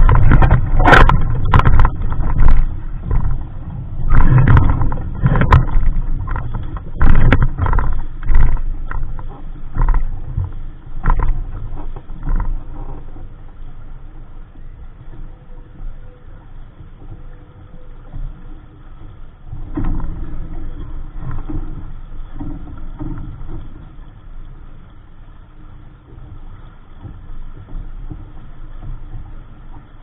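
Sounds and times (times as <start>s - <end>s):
splashes and knocks: 0.0s - 13.3s, 19.5s - 25.1s
water rushing against boat hull: 0.0s - 30.0s
wind rumbling on microphone: 0.0s - 30.0s.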